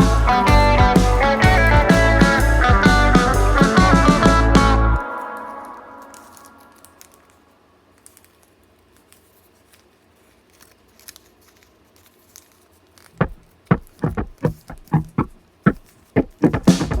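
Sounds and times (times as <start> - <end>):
plucked guitar music: 0.0 - 5.0
paper rustling: 5.0 - 17.0
paper being cut: 9.0 - 17.0.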